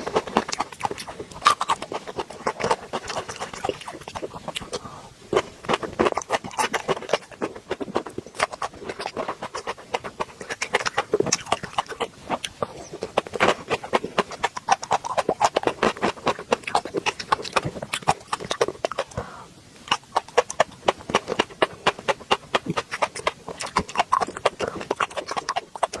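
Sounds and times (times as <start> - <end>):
chewing with wet mouth clicks: 0.0 - 26.0.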